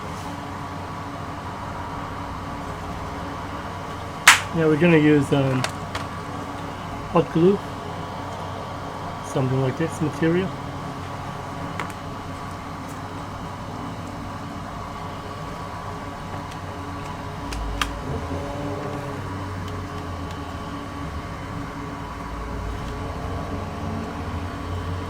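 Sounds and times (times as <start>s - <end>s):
mechanical hum: 0.0s - 25.0s
sharp click: 4.3s - 4.6s.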